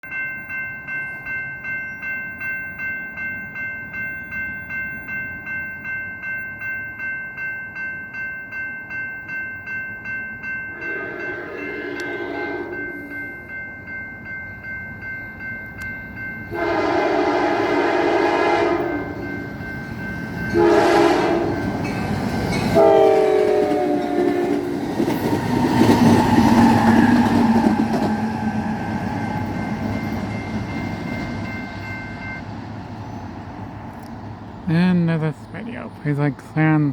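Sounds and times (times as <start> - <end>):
crossing bell ringing: 0.0 - 36.9
train passing: 0.1 - 36.9
locomotive horn blasts: 10.8 - 13.3, 16.5 - 19.2, 20.5 - 21.7, 22.8 - 24.7.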